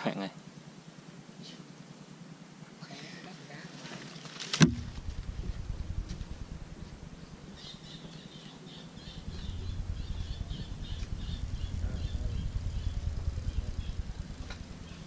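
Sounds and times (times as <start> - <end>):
wind rumble on microphone: 4.6 - 8.0, 9.0 - 15.0
bird squawking: 7.5 - 13.0.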